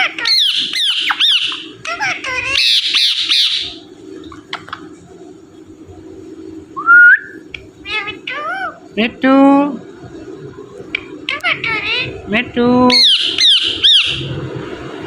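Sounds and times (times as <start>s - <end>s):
parakeet squawking and chattering: 0.0s - 5.1s, 7.3s - 9.2s, 10.8s - 14.5s
loud rising whistle: 6.8s - 7.4s.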